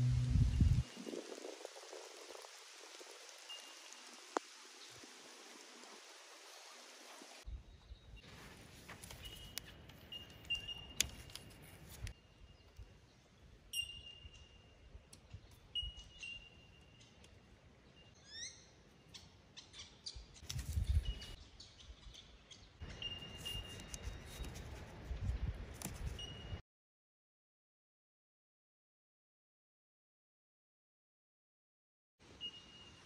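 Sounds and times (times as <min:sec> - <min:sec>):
low rumble: 0:00.0 - 0:01.4
rising bird chirps: 0:17.9 - 0:24.5.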